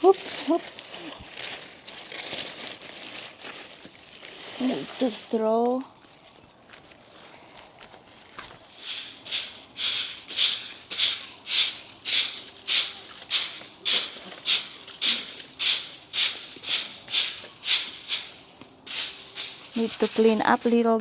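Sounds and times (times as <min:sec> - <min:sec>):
stick broom sweeping: 0:08.7 - 0:20.8.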